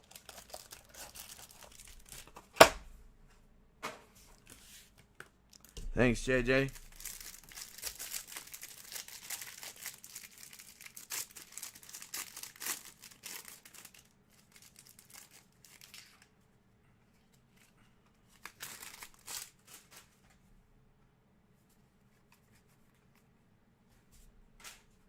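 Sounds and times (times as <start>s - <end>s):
plastic wrappers crinkling and tearing: 0.0s - 2.4s, 5.5s - 5.8s, 6.6s - 16.3s, 18.3s - 20.1s.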